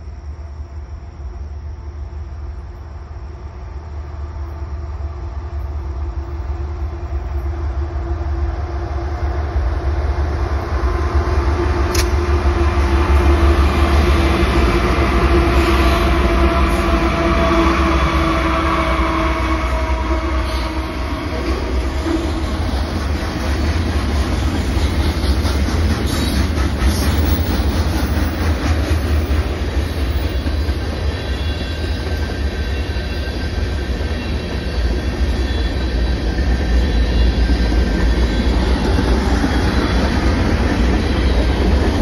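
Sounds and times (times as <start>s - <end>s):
locomotive engines rumbling: 0.0s - 42.0s
brief click: 11.9s - 12.2s.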